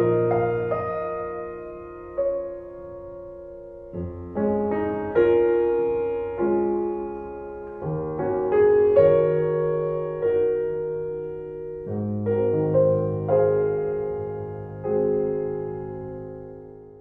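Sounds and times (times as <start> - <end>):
slow gentle piano music: 0.0 - 17.0.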